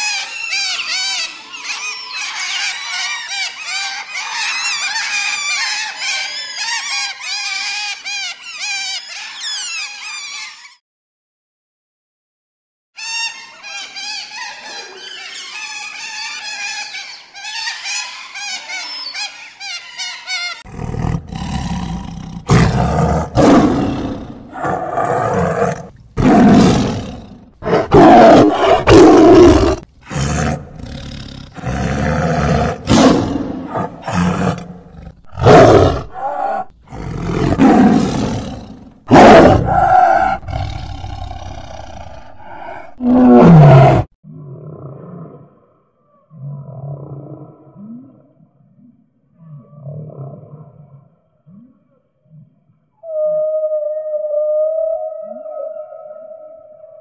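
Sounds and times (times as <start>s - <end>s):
tiger roaring and growling: 20.7s - 48.5s, 49.3s - 53.2s.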